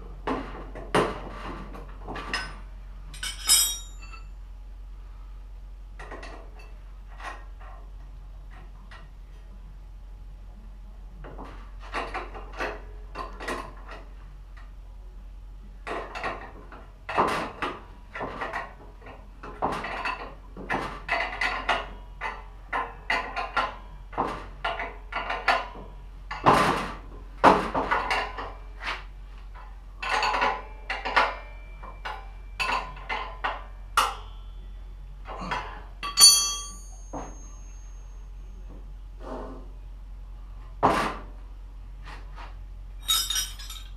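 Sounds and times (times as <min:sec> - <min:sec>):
metal tools clanking: 0:02.2 - 0:04.3, 0:35.4 - 0:38.0, 0:43.0 - 0:43.9
bright ringing metal clink: 0:03.2 - 0:04.3, 0:36.0 - 0:38.3, 0:43.0 - 0:43.9.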